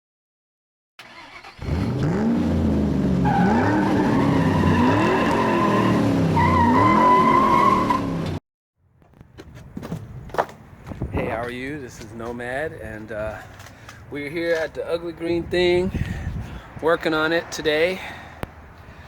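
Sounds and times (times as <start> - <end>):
car engine revving: 1.2 - 8.4
high tire squeal: 3.2 - 8.3.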